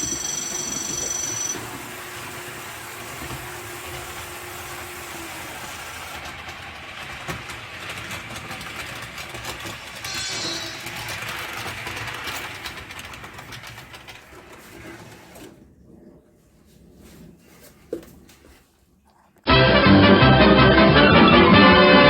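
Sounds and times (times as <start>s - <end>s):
model train motor hum: 0.0s - 15.5s
wheel noise on rails: 0.0s - 18.6s
high whine: 10.0s - 11.2s.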